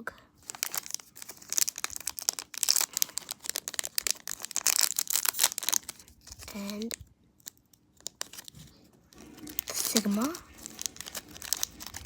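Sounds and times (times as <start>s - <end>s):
plastic packaging crinkling and tearing: 0.4s - 12.0s.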